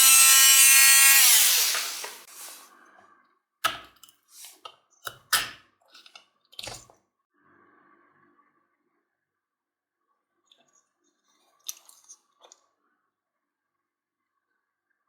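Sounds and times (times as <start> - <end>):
power tool motor whining: 0.0 - 2.6.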